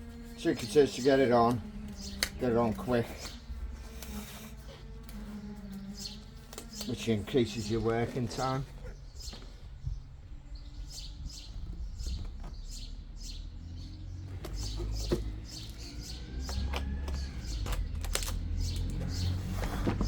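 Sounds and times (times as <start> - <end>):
steady low hum: 0.0 - 12.8
small birds chirping: 0.0 - 20.0.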